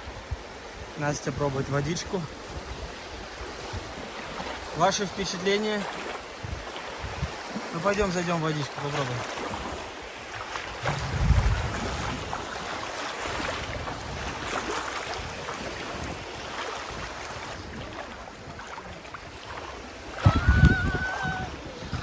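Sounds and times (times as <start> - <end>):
wind rumbling on microphone: 0.0 - 8.2, 8.9 - 22.0
small sea waves washing: 0.0 - 22.0.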